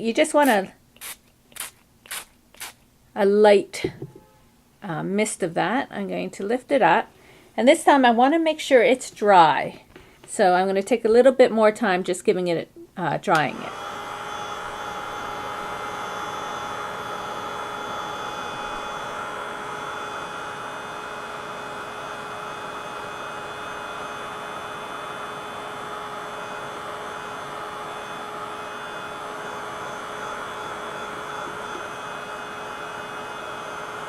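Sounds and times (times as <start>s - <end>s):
heat tool blowing hiss: 0.4s - 2.8s
motor hum: 13.6s - 34.0s.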